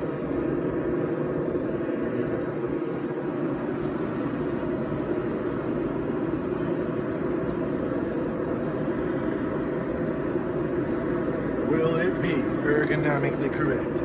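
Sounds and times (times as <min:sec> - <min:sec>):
forge rushing noise: 0:00.0 - 0:14.0.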